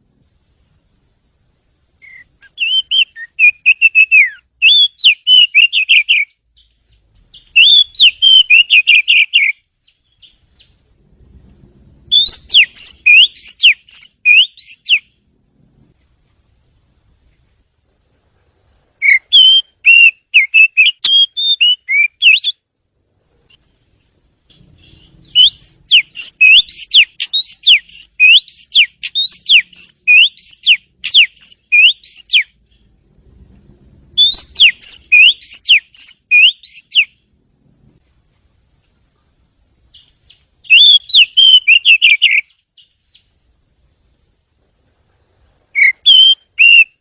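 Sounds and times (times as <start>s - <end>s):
bird singing whistled notes: 2.0s - 10.8s, 12.1s - 15.2s, 19.0s - 22.6s, 23.5s - 33.0s, 34.2s - 37.3s, 39.9s - 43.4s, 45.7s - 47.0s.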